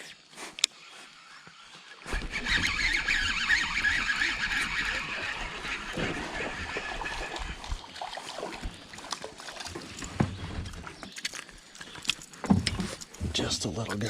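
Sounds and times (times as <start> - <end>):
river water running: 0.1 - 14.0
small splashes: 1.9 - 13.2
knocks from boat and gear: 12.4 - 13.5.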